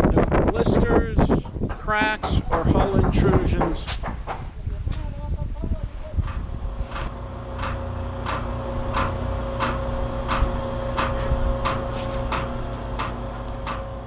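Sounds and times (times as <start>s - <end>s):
hammer tapping boat hull: 1.3s - 4.5s, 6.2s - 14.0s
steady hum: 5.8s - 14.0s.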